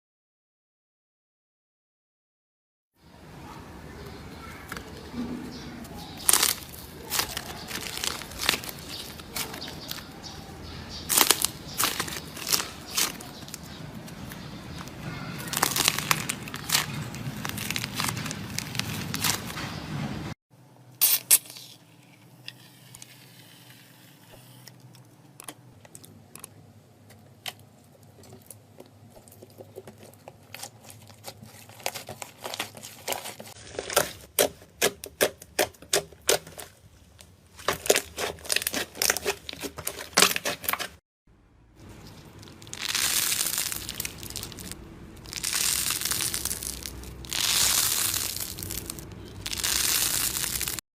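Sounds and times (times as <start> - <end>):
slime popping and crackling: 6.2 - 10.1, 10.9 - 19.6, 37.6 - 40.8, 41.9 - 50.8.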